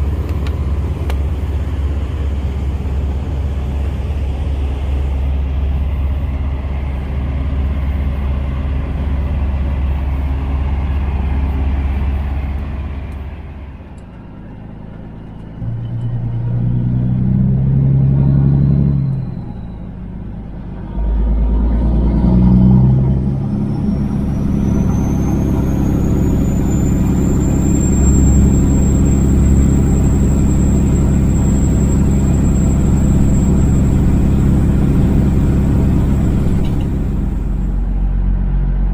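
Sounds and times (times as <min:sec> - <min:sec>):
truck diesel engine pulling: 0:00.0 - 0:38.9
thin high whine: 0:23.1 - 0:38.2.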